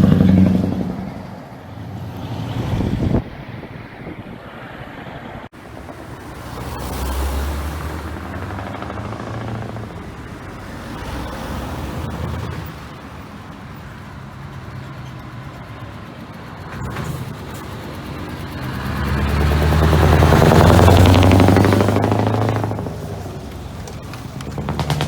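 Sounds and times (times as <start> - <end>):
truck engine deep exhaust note: 5.9 - 25.0.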